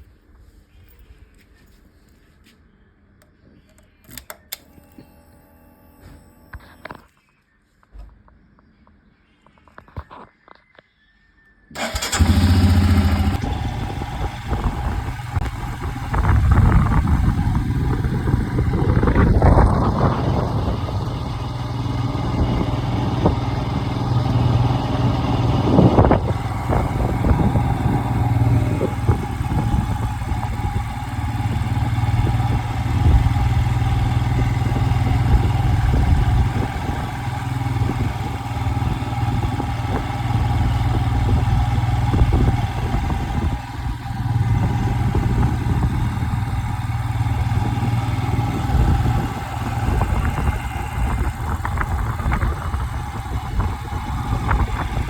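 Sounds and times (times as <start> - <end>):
vehicle engine humming: 11.8 - 55.0.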